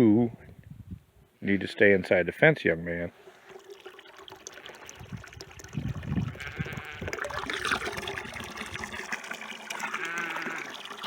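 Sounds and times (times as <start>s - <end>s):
water running from a hose: 3.2s - 11.0s
sheep bleating: 6.2s - 7.1s, 9.8s - 10.8s.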